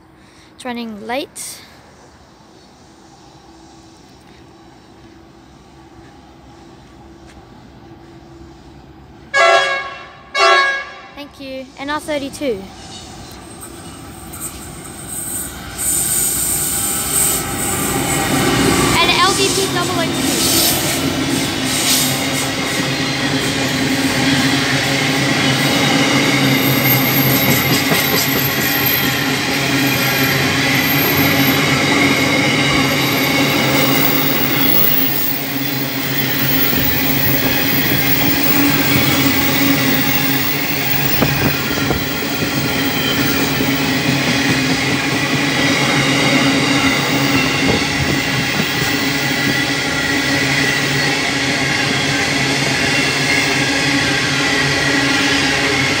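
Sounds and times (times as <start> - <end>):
train wheels rumbling on rails: 11.2 - 56.0.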